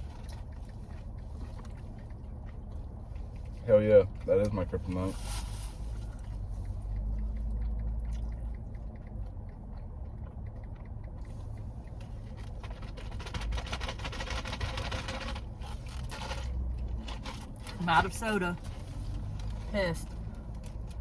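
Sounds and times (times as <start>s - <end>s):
eating crunching: 0.0s - 4.6s, 5.9s - 17.8s
low steady rumble: 0.0s - 21.0s.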